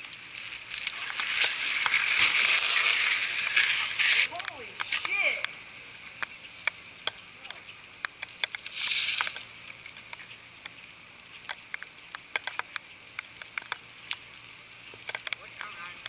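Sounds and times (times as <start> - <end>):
faint hiss: 0.0 - 16.0
rain and wet snow falling: 0.0 - 16.0
drops ticking on camera: 6.2 - 10.8, 11.4 - 14.3, 14.9 - 16.0.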